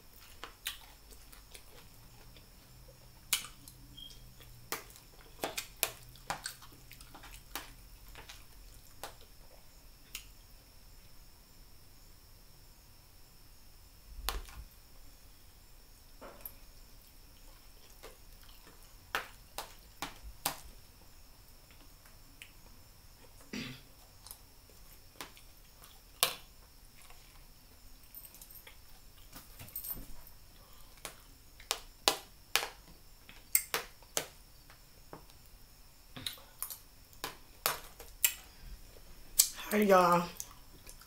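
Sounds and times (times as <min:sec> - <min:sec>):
chewing smacks and clicks: 0:00.2 - 0:02.5, 0:03.2 - 0:09.3, 0:17.0 - 0:20.6.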